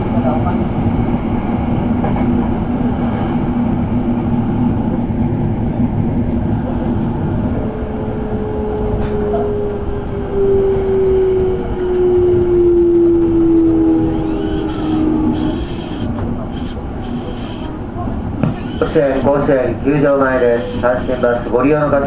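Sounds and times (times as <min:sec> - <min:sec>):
train rumbling on rails: 0:00.0 - 0:22.0
train motor whine: 0:06.1 - 0:21.6.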